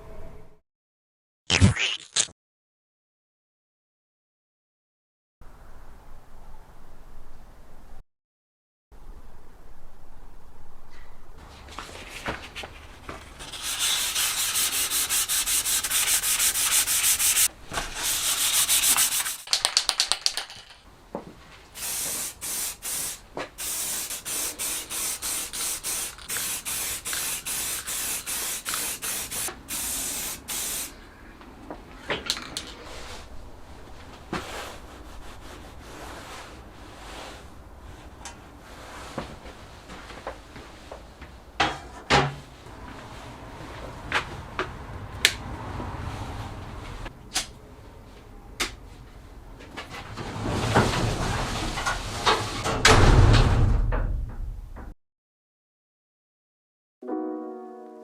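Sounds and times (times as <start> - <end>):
hand sanding metal: 13.4 - 19.5, 21.8 - 30.9.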